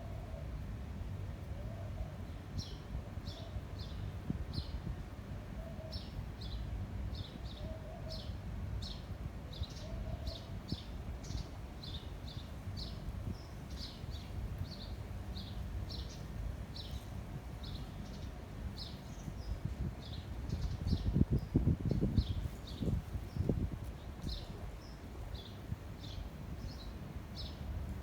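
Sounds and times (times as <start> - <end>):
wind on microphone: 19.2 - 27.0.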